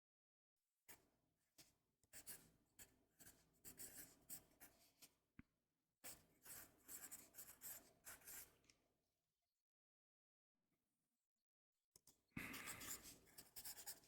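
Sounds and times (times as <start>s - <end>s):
pen scratching on paper: 3.2s - 4.8s, 6.4s - 8.4s, 12.4s - 14.0s.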